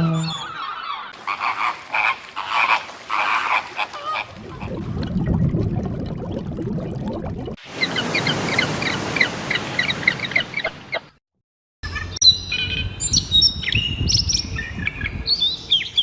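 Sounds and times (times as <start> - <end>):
frogs croaking: 0.4 - 4.4.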